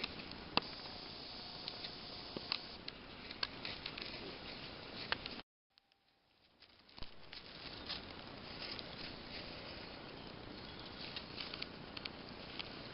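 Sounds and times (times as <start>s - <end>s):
forest ambience hiss: 0.0s - 2.8s.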